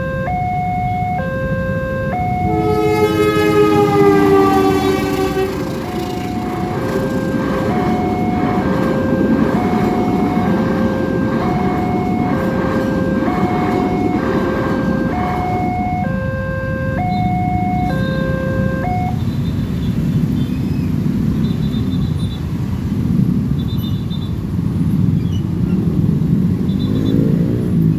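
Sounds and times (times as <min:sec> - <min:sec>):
level-crossing two-tone alarm: 0:00.0 - 0:19.2
passing train rumble: 0:00.0 - 0:23.6.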